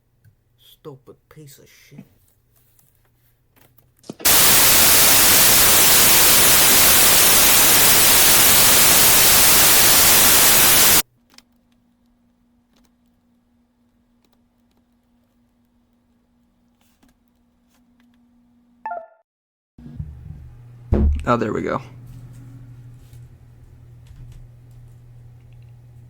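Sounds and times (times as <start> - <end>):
faint steady hum: 4.3 - 11.0
white noise static: 4.3 - 11.0.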